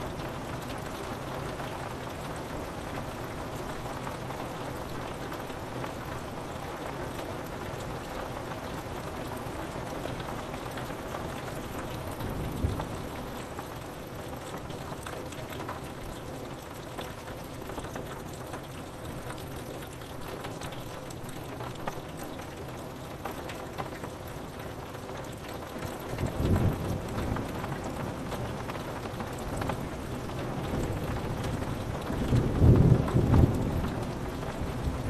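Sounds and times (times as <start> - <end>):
rain pattering on window: 0.0 - 35.0
distant thunder rumble: 30.9 - 35.0.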